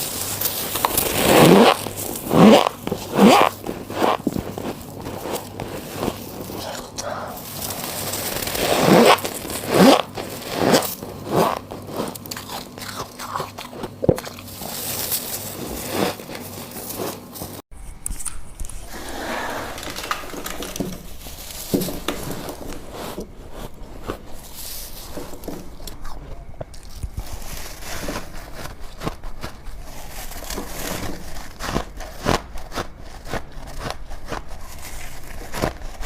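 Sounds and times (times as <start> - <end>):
ice crunching being chewed: 9.2 - 17.6.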